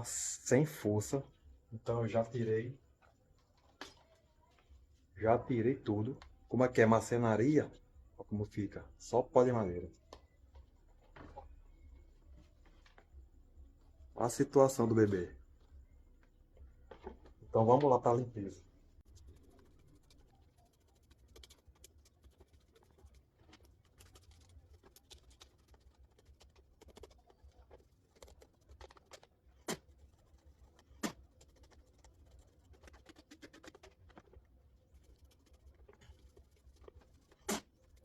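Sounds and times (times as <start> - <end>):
scratching and rubbing: 9.0 - 38.0.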